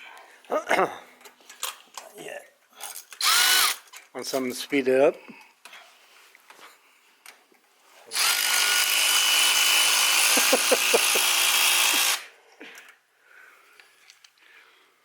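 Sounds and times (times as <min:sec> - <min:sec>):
power tool whine: 0:03.2 - 0:03.8, 0:08.1 - 0:12.3.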